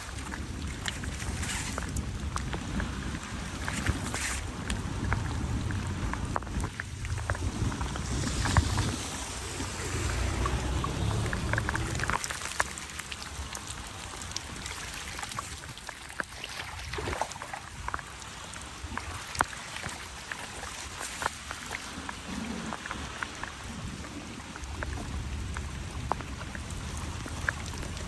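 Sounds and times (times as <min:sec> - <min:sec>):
running splashing water: 0:00.0 - 0:28.0
water dripping: 0:00.0 - 0:28.0
low rumble: 0:04.4 - 0:12.4.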